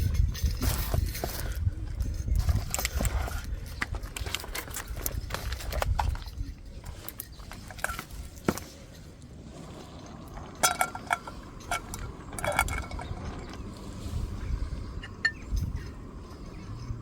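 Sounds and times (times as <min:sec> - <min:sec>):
cookware clinking and knocking: 0:10.6 - 0:13.4.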